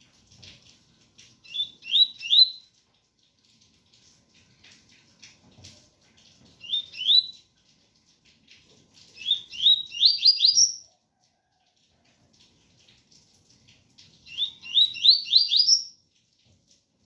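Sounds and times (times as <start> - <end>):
faint rain patter: 0.0 - 17.0
bird singing rising whistles: 9.2 - 10.8, 14.3 - 15.9.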